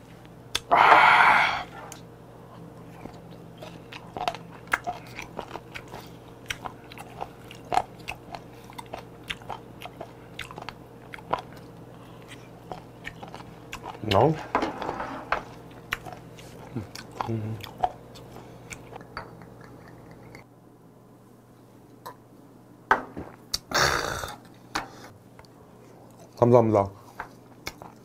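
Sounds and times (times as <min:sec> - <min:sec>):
breathy exhale: 0:00.7 - 0:01.8
crunchy chewing: 0:01.9 - 0:14.4, 0:15.4 - 0:20.5, 0:27.4 - 0:28.0.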